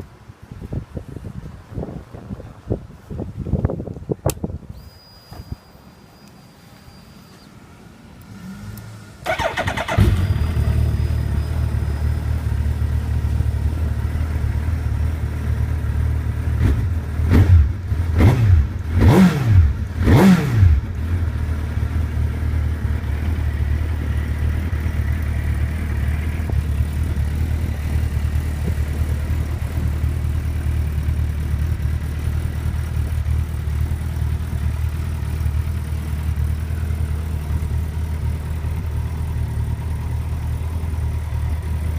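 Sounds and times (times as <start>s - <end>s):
motorcycle engine starting: 8.2s - 41.9s
motorcycle engine revving: 8.3s - 15.0s, 15.7s - 41.9s
motorcycle engine idling: 9.2s - 19.0s, 20.7s - 41.9s.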